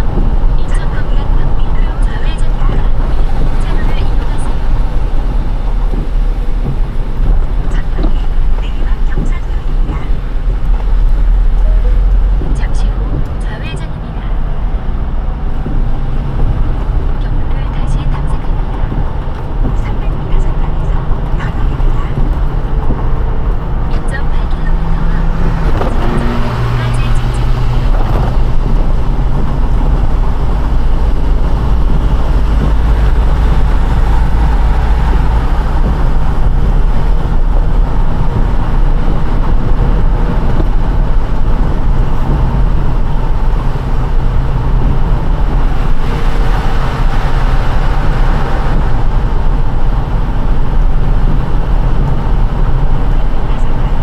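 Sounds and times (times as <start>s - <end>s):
low road rumble: 0.0s - 54.0s
tyres hissing on wet road: 14.4s - 54.0s.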